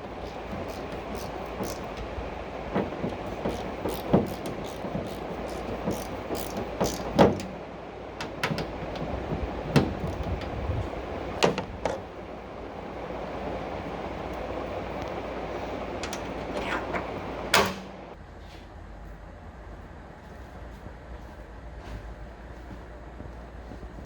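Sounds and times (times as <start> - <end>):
steady rumbling noise: 0.0 - 24.0
irregular knocks and clicks: 0.4 - 7.5.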